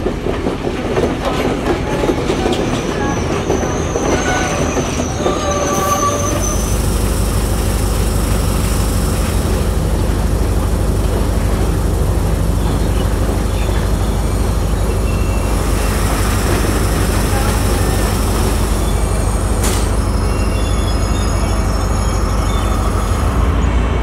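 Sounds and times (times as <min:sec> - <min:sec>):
train wheels squealing and clattering: 0:00.1 - 0:10.0, 0:10.9 - 0:23.8
diesel train idling hum: 0:05.1 - 0:24.0.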